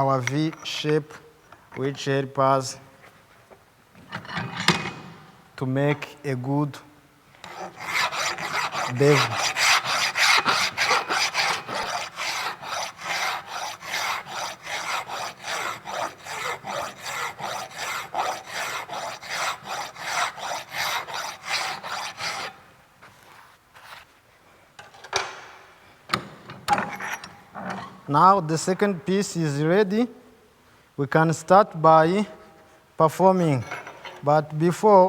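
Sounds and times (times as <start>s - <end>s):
hand file rasping on metal: 7.4s - 22.6s.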